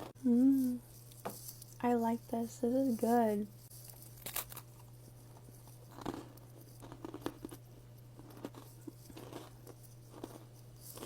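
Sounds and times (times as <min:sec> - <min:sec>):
faint low hum: 0:00.0 - 0:11.0
crunching dried candy: 0:03.7 - 0:11.0.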